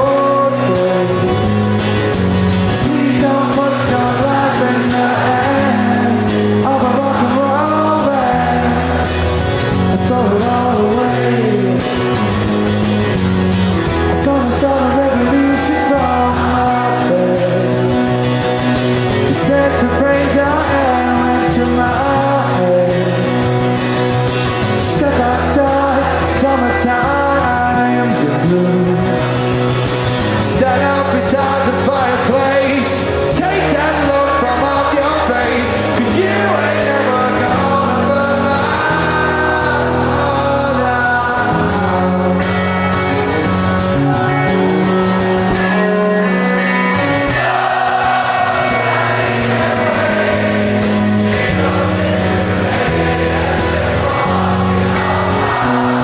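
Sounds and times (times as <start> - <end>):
person singing: 0.0 - 1.6, 2.7 - 9.0, 9.7 - 12.3, 14.1 - 18.1, 19.3 - 23.6, 30.5 - 42.8
bass line: 0.0 - 56.0
live rock band playing: 0.0 - 56.0.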